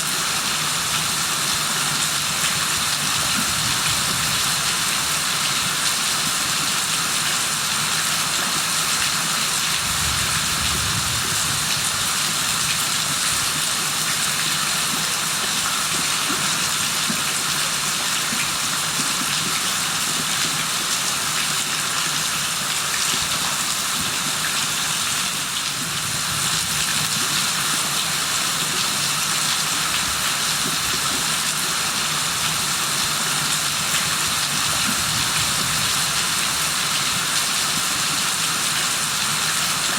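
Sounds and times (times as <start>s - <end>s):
heavy rain falling: 8.6s - 15.4s.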